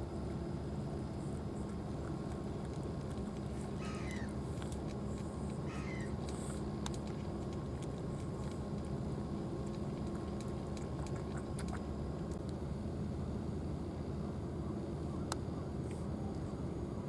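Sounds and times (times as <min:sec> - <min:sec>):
low hum: 0:00.0 - 0:17.0
cat chewing food: 0:01.1 - 0:12.6.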